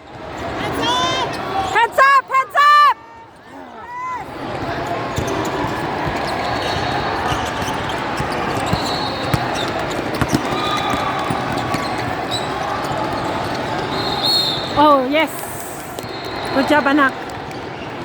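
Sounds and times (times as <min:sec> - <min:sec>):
din of spectators: 0:00.0 - 0:18.0
shoe squeaks: 0:05.1 - 0:15.1
basketball dribbling: 0:05.2 - 0:14.1.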